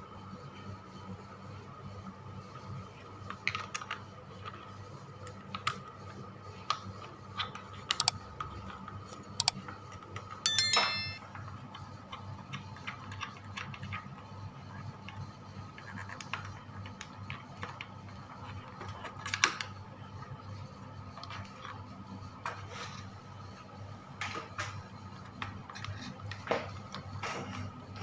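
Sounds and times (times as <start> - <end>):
ringing metallic clatter: 10.5 - 11.2.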